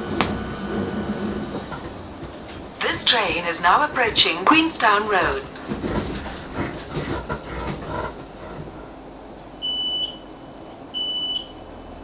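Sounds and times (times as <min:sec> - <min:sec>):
low interior rumble: 0:00.0 - 0:10.6
train door warning beeps: 0:09.6 - 0:11.7.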